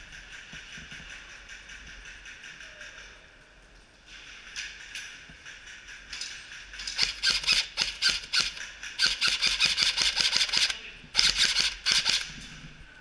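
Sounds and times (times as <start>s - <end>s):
airsoft guns firing: 6.8s - 12.4s.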